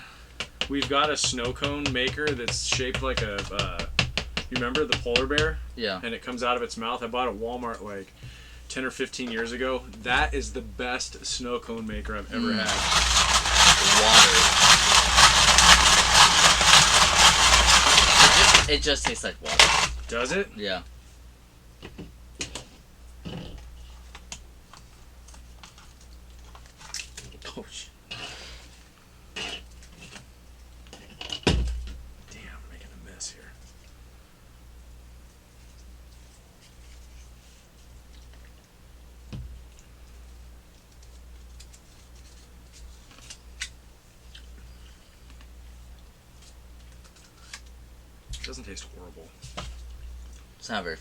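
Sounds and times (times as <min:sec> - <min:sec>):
handling clicks and scrapes: 0:12.7 - 0:20.2.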